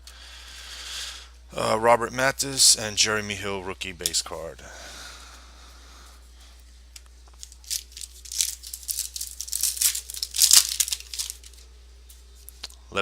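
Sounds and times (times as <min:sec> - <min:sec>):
foil wrapper tearing and crinkling: 0:07.4 - 0:11.6.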